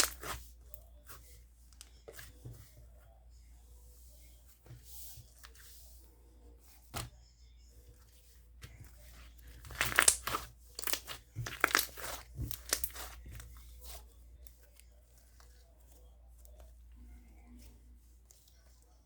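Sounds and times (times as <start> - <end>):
slime crackling and popping: 0.0 - 0.4, 9.5 - 13.4
hands handling slime: 0.0 - 2.8, 7.9 - 18.8.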